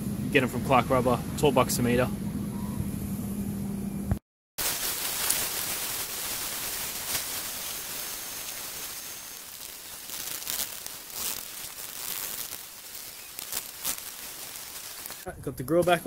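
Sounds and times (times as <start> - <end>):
rain falling: 4.6 - 15.3.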